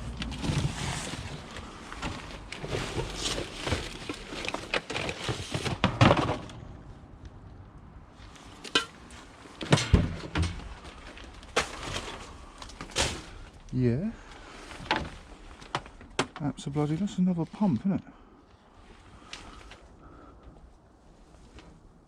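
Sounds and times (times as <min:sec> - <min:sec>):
hands rummaging through rubbish: 0:00.0 - 0:06.5, 0:08.2 - 0:17.9
sharp knocks of objects shifted: 0:02.0 - 0:06.7, 0:08.6 - 0:10.8.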